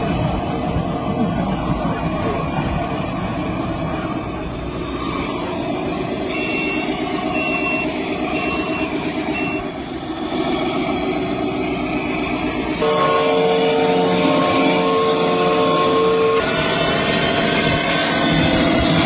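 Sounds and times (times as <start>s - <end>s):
truck engine rumbling: 0.0s - 19.0s
reversing alarm beeping: 6.1s - 9.8s.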